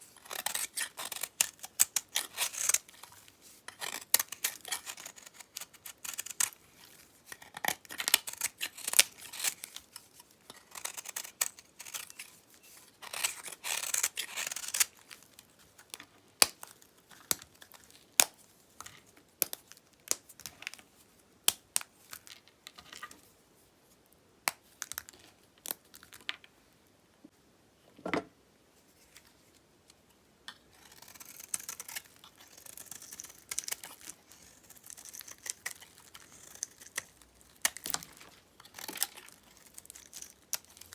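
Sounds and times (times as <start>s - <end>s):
knife cutting dry soap: 0.0s - 20.8s, 30.6s - 40.9s.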